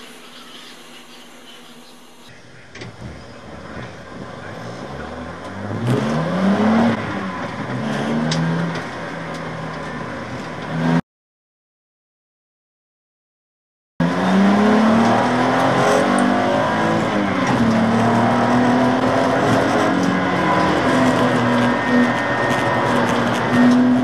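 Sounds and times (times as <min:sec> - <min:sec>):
race car engine revving: 0:03.0 - 0:11.0, 0:14.0 - 0:24.0.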